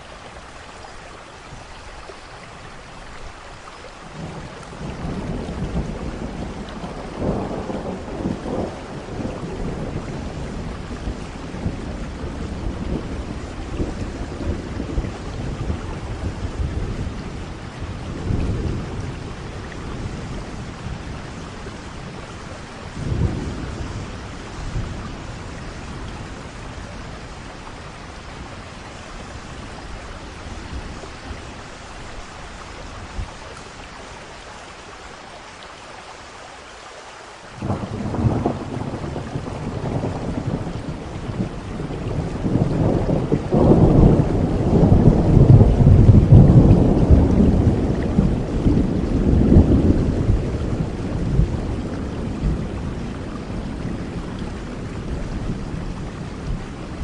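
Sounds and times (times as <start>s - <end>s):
steady rain falling: 0.0s - 57.0s
loud thunderclap: 4.2s - 21.0s, 23.0s - 25.0s, 37.6s - 57.0s
rolling thunder: 4.2s - 32.3s, 37.6s - 57.0s.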